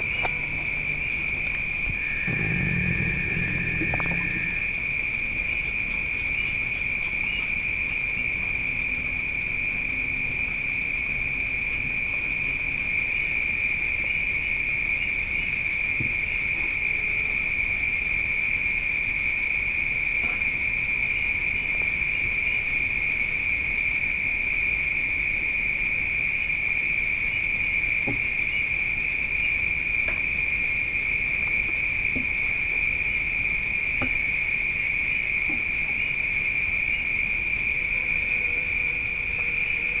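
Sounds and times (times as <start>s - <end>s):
higher pulsing insect band: 0.0s - 6.6s
insects trilling: 0.0s - 40.0s.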